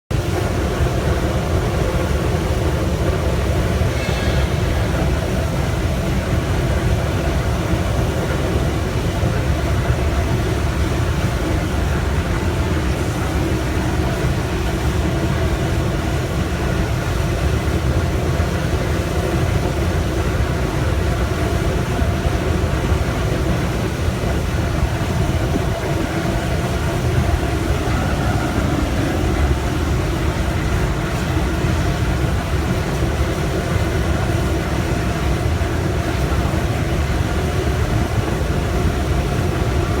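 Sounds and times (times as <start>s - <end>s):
burner flame and fan rumble: 0.1s - 40.0s
steady humming tones: 0.2s - 40.0s.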